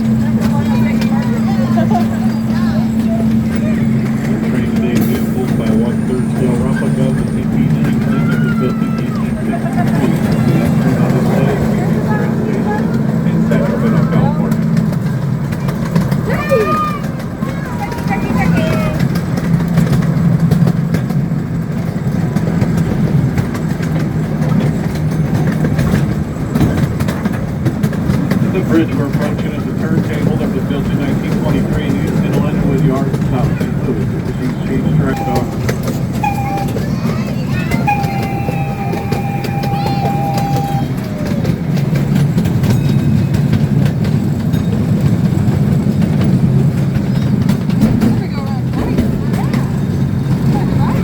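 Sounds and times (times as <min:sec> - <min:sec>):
locomotive engine humming: 0:00.0 - 0:51.0
ride-on train rumbling: 0:00.0 - 0:51.0
wheels clicking on track: 0:00.0 - 0:51.0
steady high tone: 0:35.1 - 0:41.3.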